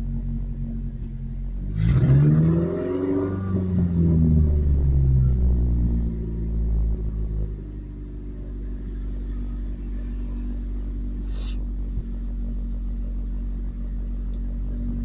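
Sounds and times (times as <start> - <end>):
truck engine idling: 3.8 - 15.0
brief hiss: 11.2 - 11.7.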